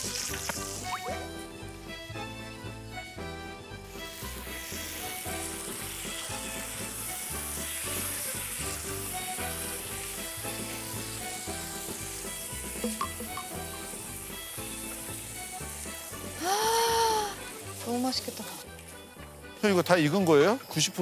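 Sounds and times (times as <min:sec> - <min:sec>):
food sizzling in a pan: 0:00.0 - 0:01.7, 0:03.8 - 0:21.0
background music with beat: 0:00.0 - 0:06.5, 0:07.1 - 0:18.1.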